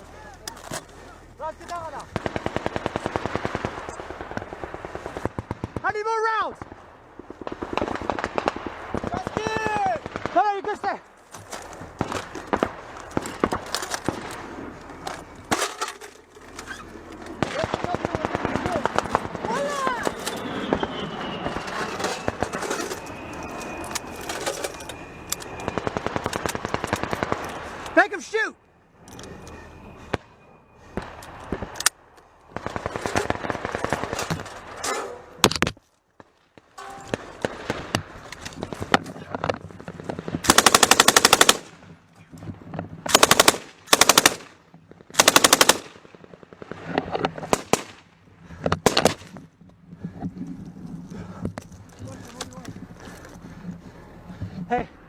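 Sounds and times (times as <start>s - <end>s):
automatic gunfire burst: 2.1s - 5.7s, 40.4s - 41.7s, 43.1s - 44.5s, 45.2s - 46.0s, 47.5s - 48.0s
machine gun bursts: 40.4s - 41.7s, 43.1s - 44.5s, 45.2s - 46.0s.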